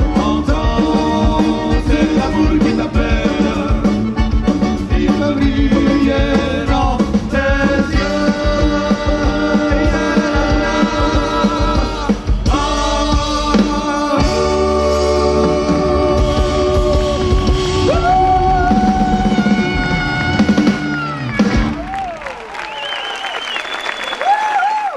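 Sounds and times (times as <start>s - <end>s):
accordion: 0.0s - 17.8s
people singing: 0.0s - 20.2s
double bass: 0.0s - 22.0s
drum kit: 0.0s - 22.2s.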